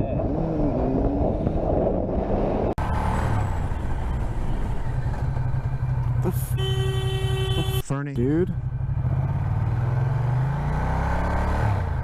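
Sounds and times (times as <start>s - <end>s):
wind rush on microphone: 0.0s - 2.8s
motorcycle engine rumble: 0.0s - 10.5s.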